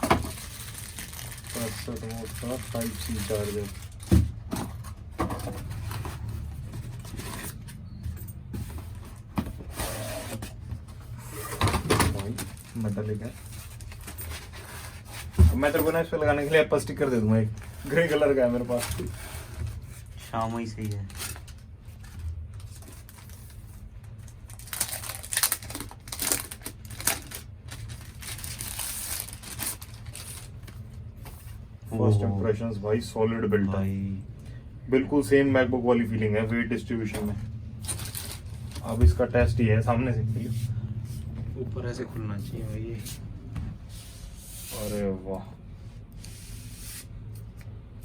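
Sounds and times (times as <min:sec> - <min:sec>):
packaging rustling: 0:00.0 - 0:04.4, 0:20.7 - 0:31.1, 0:37.8 - 0:38.9
steady low hum: 0:30.4 - 0:48.0.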